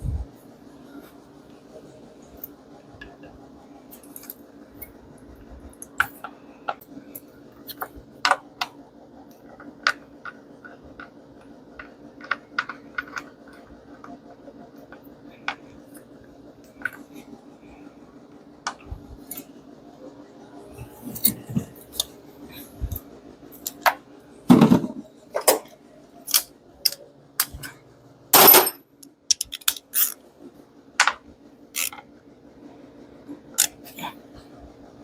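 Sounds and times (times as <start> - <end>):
steady low hum: 0.0 - 35.0
metal tools clicking and scraping: 28.4 - 30.2, 31.7 - 32.0.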